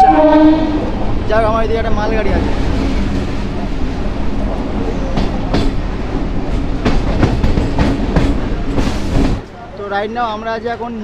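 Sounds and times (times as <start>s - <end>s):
electric train rumbling: 0.0s - 11.0s
wheels clacking over rail joints: 2.4s - 9.6s.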